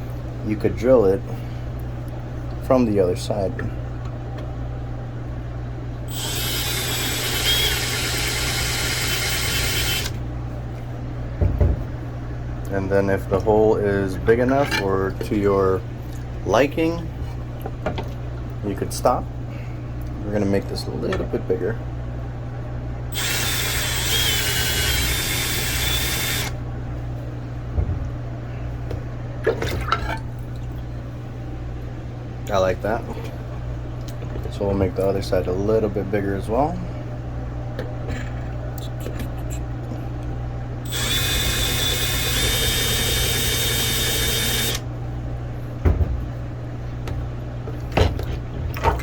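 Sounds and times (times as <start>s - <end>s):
steady low hum: 0.0s - 49.0s
drill grinding into slate: 6.1s - 10.2s, 23.1s - 26.6s, 40.9s - 44.8s.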